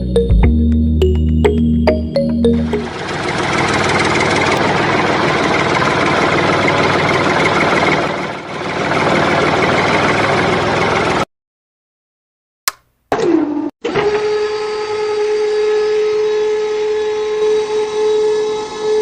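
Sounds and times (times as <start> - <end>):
motor running: 2.7 - 11.2.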